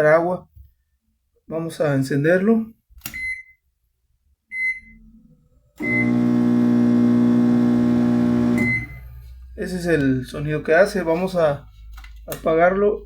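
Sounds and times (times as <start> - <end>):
microwave keypad beeping: 5.8 - 9.0
microwave buzzing hum: 5.8 - 9.3.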